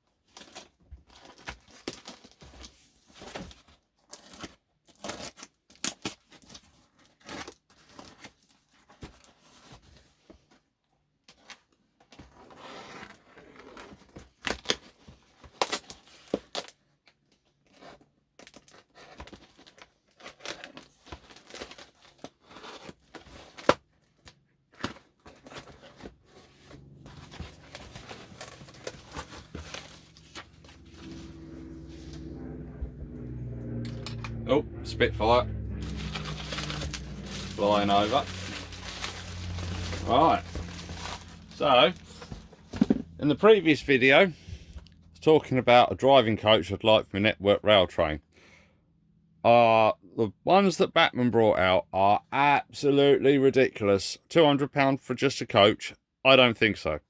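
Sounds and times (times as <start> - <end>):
low aircraft engine drone: 26.3 - 43.4
tape and paper tearing: 35.8 - 42.8
packaging crinkling: 35.8 - 43.0.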